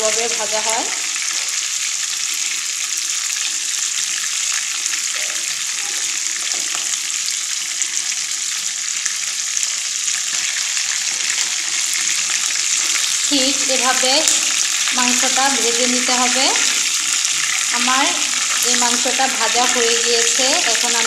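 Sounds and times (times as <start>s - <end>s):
chicken sizzling in oil: 0.0s - 21.0s
spatula stirring in pan: 10.2s - 21.0s.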